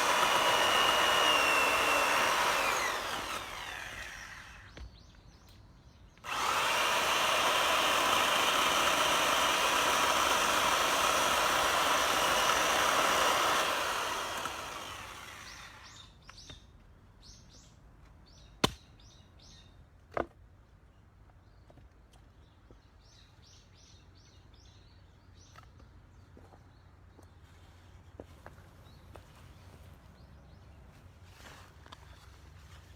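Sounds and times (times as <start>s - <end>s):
power saw running: 0.0s - 4.7s, 6.2s - 16.0s.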